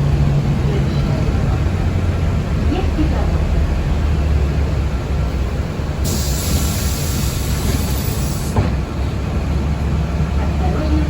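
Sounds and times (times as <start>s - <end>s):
transit vehicle low rumble: 0.0s - 11.0s
air hissing: 6.0s - 8.6s.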